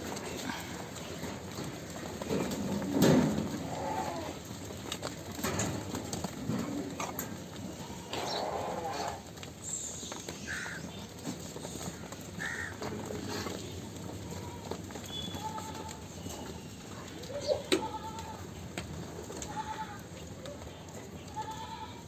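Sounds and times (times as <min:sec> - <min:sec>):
goats bleating: 0:02.4 - 0:04.6, 0:06.5 - 0:09.4, 0:12.4 - 0:16.4, 0:17.4 - 0:18.5, 0:19.2 - 0:20.2, 0:21.3 - 0:22.0
bird calls: 0:08.1 - 0:12.8.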